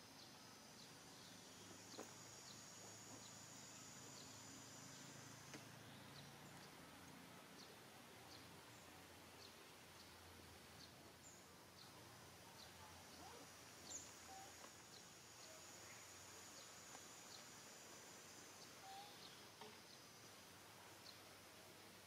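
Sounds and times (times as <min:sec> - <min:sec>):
small birds chirping: 0:00.0 - 0:21.7
high insect buzz: 0:13.2 - 0:20.4.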